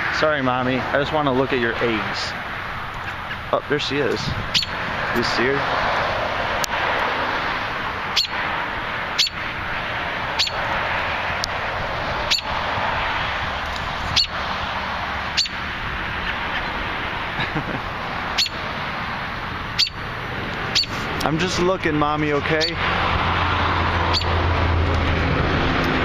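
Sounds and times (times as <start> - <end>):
steady background noise: 0.0 - 26.0
bird alarm calls: 2.9 - 3.6, 4.5 - 4.8, 8.1 - 8.4, 9.1 - 9.5, 10.3 - 10.6, 12.2 - 12.5, 14.1 - 14.4, 15.3 - 15.6, 18.3 - 18.6, 19.6 - 20.1, 20.7 - 21.0, 24.1 - 24.4.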